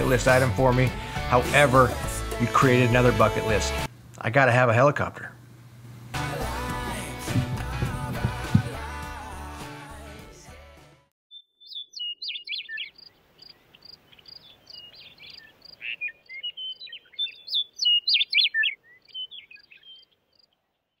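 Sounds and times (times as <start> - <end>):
music: 0.0 - 3.9, 6.1 - 11.1
songbird chirping and whistling: 11.3 - 20.5.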